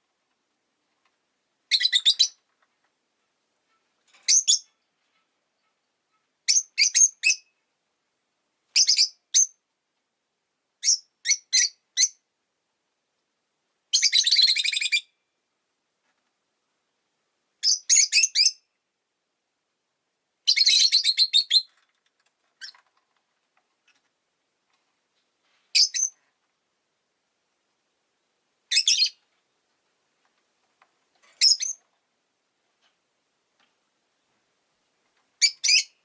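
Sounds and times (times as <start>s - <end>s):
lovebird chirping: 1.7s - 2.4s, 3.7s - 7.6s, 8.7s - 9.6s, 10.8s - 12.2s, 13.9s - 15.2s, 17.6s - 18.7s, 20.4s - 21.8s, 25.7s - 26.2s, 28.7s - 29.2s, 31.4s - 31.8s, 35.4s - 36.0s.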